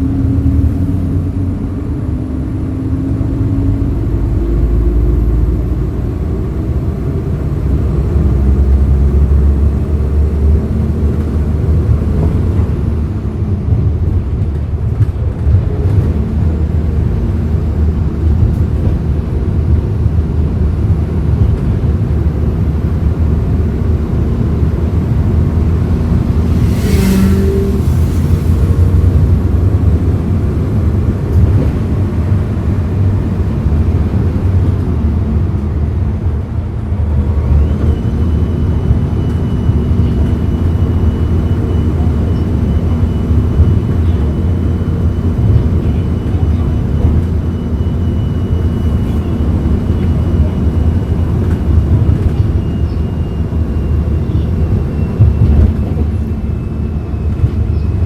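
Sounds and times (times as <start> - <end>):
bus engine rumbling: 0.0 - 58.0.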